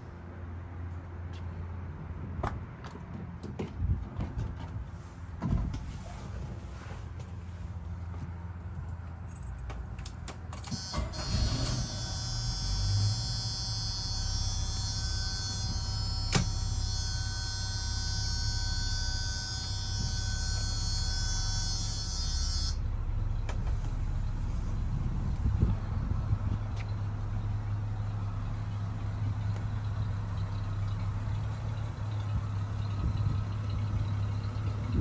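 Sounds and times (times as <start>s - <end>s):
electric motor whine: 11.0s - 22.8s
car engine idling: 11.1s - 35.0s.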